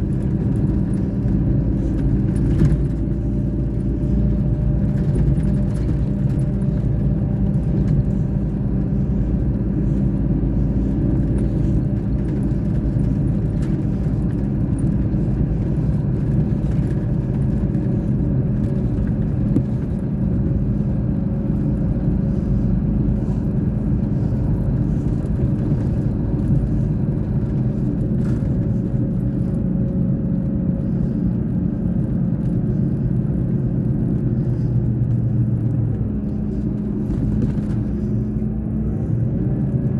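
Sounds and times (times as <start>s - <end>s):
bus engine humming: 0.0s - 39.9s.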